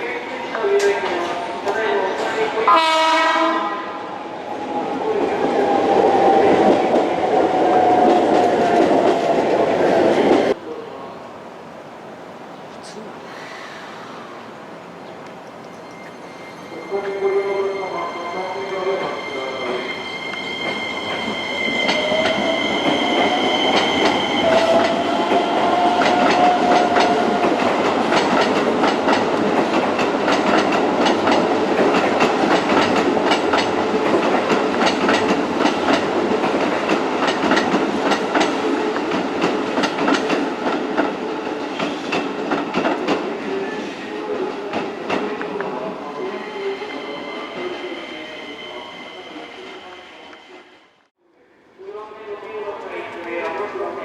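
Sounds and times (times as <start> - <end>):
electric train whine: 13.4 - 29.5
train wheels clicking on rail joints: 21.9 - 43.3.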